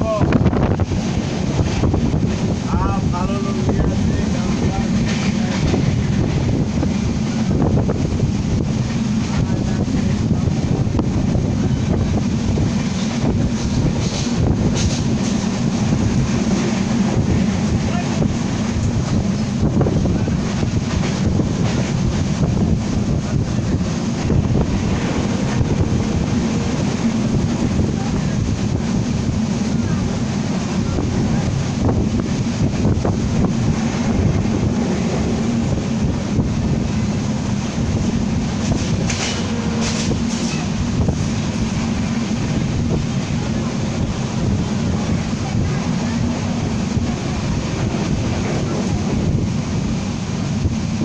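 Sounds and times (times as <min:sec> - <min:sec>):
moving train rumble: 0:00.0 - 0:51.0
wind buffeting microphone: 0:00.0 - 0:51.0.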